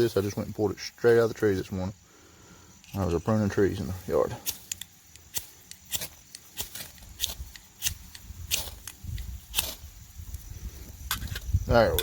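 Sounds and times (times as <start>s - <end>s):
fire striker scraping: 2.8s - 12.0s.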